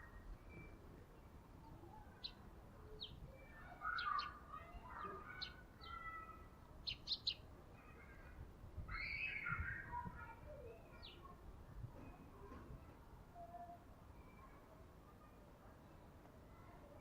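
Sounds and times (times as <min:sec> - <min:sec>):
birds chirping and twittering: 0:00.0 - 0:11.4.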